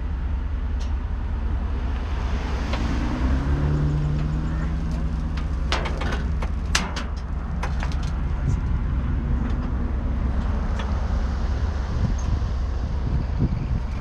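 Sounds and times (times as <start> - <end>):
held engine tone: 0.0 - 14.0
vehicle engine rumbling: 0.0 - 14.0
metallic clicks and clanks: 4.1 - 8.3.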